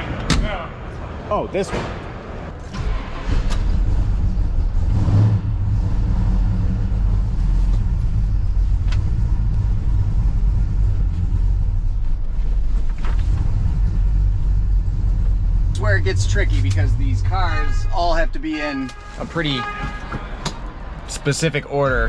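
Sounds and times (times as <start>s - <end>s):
car engine idling: 2.6s - 19.0s.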